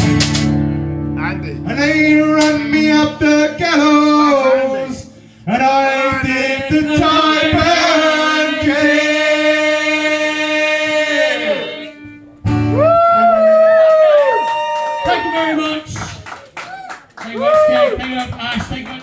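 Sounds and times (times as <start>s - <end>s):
acoustic accompaniment: 0.0s - 14.0s
man singing: 1.6s - 11.8s.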